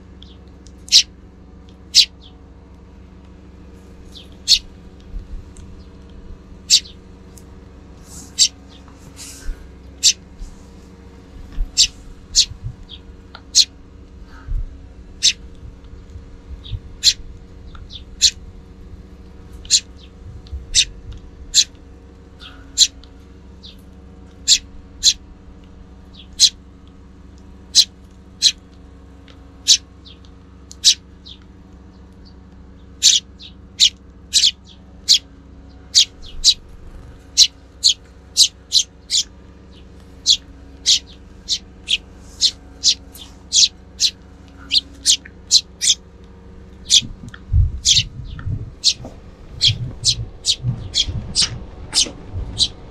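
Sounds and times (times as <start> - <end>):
sparrows chirping: 0.0 - 52.9
low wind rumble: 0.8 - 29.7, 32.3 - 52.9.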